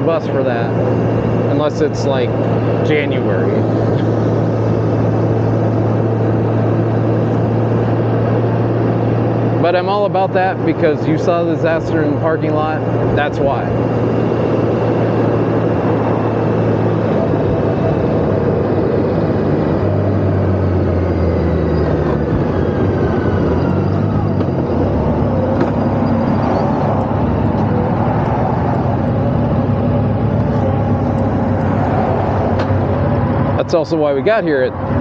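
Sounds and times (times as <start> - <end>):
motorcycle engine running: 0.0 - 34.2
road noise: 0.0 - 35.0
wind noise: 12.0 - 35.0.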